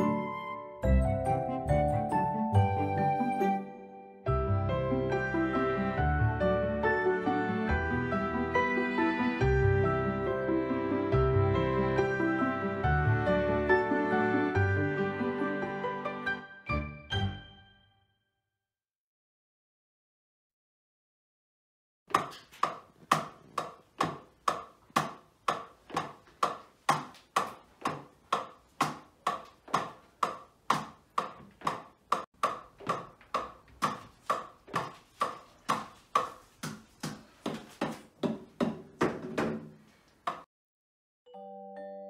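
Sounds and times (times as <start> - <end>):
drumsticks hitting electronic drum pads: 22.1 - 36.4.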